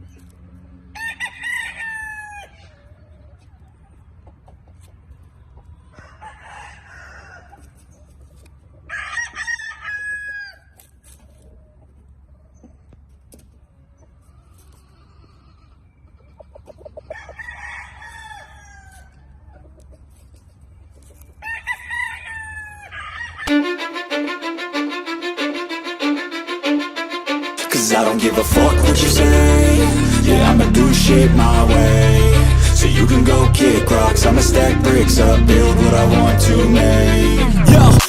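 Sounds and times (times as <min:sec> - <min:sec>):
roosters crowing: 0:00.9 - 0:02.9, 0:05.9 - 0:07.7, 0:08.9 - 0:10.8, 0:17.1 - 0:19.5, 0:21.4 - 0:23.5.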